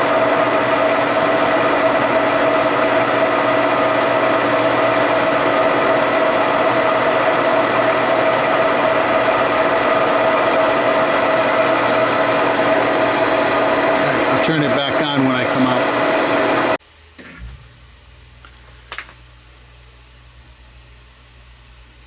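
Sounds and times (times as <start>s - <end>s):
metal lathe whining: 0.0s - 16.8s.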